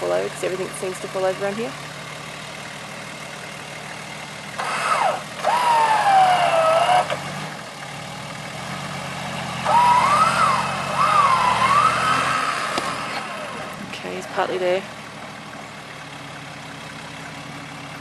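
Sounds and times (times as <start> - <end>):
diesel engine idling: 0.0 - 18.0
electric winch whining: 4.6 - 7.2, 9.6 - 13.8.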